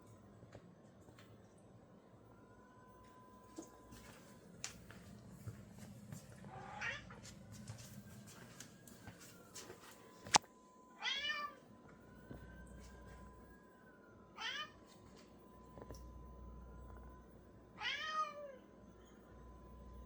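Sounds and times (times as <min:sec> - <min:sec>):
cat squeaky meows: 0:11.0 - 0:11.6, 0:14.4 - 0:14.8, 0:17.8 - 0:18.6.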